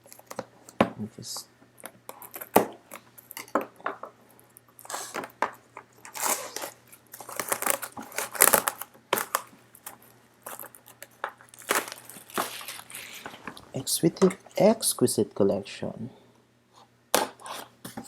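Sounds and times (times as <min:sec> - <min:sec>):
card box packaging being opened: 0:06.0 - 0:13.6.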